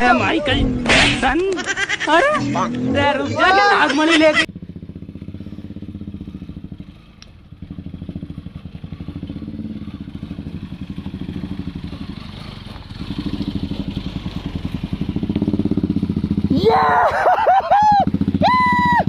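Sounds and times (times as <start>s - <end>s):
motorcycle engine running: 4.2s - 19.0s.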